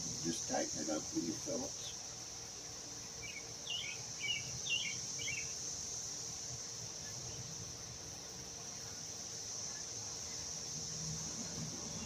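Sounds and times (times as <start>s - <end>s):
insect drone: 0.0s - 12.0s
bird chirping: 3.2s - 5.6s.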